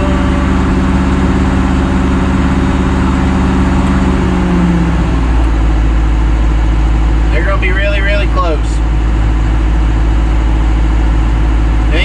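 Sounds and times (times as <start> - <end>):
heavy equipment engine idling: 0.0 - 12.0.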